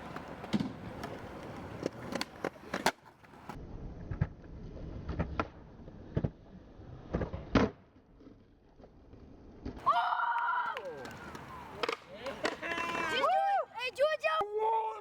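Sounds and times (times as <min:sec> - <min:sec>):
skateboard clacks: 0:00.0 - 0:04.4, 0:10.6 - 0:13.2
skateboard wheels rolling on concrete: 0:00.0 - 0:14.3.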